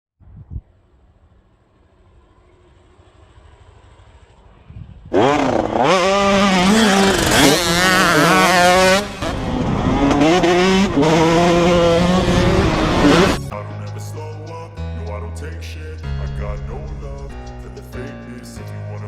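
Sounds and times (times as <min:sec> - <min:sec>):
motorcycle engine revving: 0:02.1 - 0:13.6.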